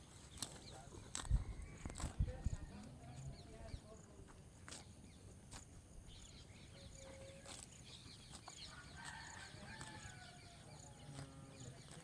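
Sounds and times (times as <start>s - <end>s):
rooster crowing: 8.7s - 10.7s.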